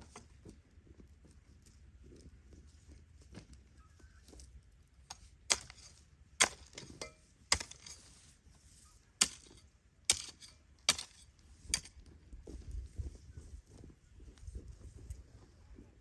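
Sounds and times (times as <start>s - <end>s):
hoe striking soil: 5.1s - 8.3s, 9.2s - 12.0s.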